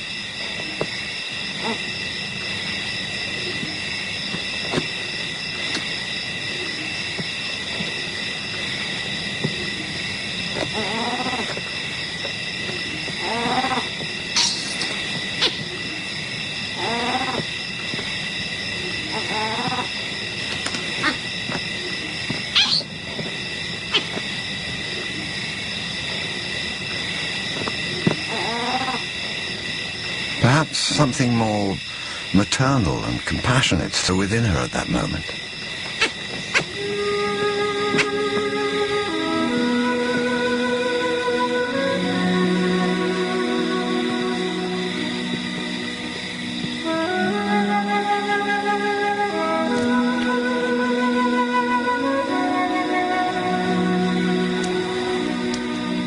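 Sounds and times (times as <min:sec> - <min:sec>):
insects buzzing: 0:00.0 - 0:56.0
faint animal calls: 0:01.5 - 0:02.4, 0:09.4 - 0:11.9, 0:12.6 - 0:16.1, 0:16.7 - 0:17.6, 0:18.7 - 0:23.0, 0:23.8 - 0:24.3, 0:27.8 - 0:29.2, 0:34.8 - 0:39.6.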